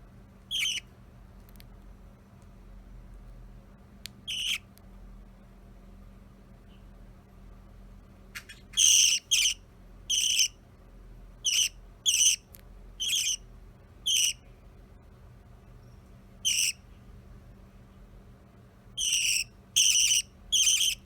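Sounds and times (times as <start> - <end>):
budgerigar chirping: 0.5 - 0.9, 4.3 - 4.6, 8.4 - 10.6, 11.4 - 12.4, 13.0 - 13.4, 14.0 - 14.4, 16.4 - 16.8, 19.0 - 21.0.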